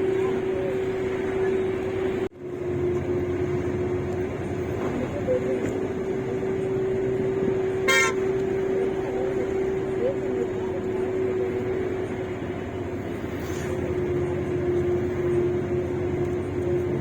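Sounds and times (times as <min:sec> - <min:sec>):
bus engine and road drone: 0:00.0 - 0:17.0
constant hum: 0:00.0 - 0:17.0
vehicle horn toot: 0:07.8 - 0:08.4.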